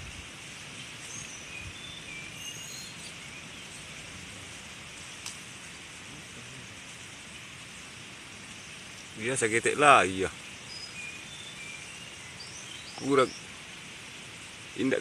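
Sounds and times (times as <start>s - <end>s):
outdoor background hiss: 0.0s - 15.0s
high bird chirps: 1.1s - 3.8s, 10.6s - 13.5s.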